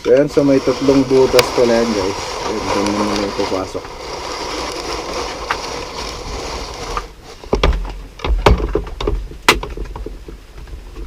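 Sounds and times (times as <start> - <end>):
steady hiss: 0.0 - 8.4.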